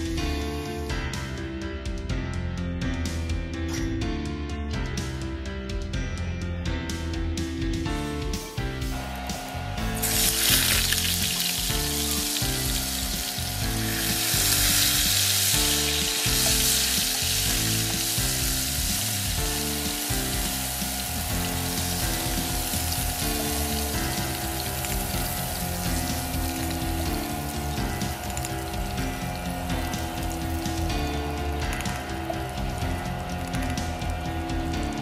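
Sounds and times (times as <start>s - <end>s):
garlic sizzling in hot oil: 9.9s - 35.0s.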